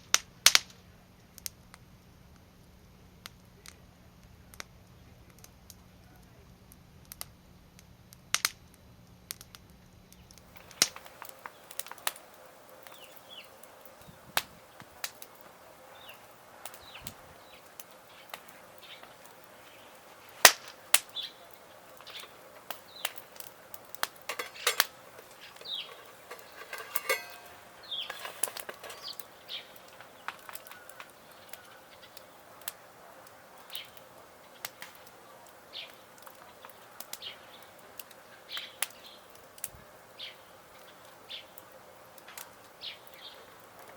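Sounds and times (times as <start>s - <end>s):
wood fire crackling: 0.0s - 43.9s
birds chirping: 12.7s - 20.1s, 21.1s - 32.6s.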